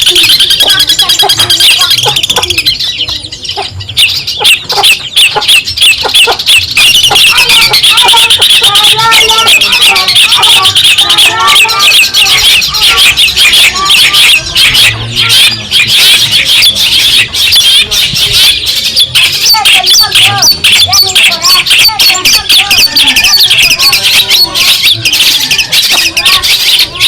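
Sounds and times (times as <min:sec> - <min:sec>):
bird singing harsh chatter: 0:00.0 - 0:27.0.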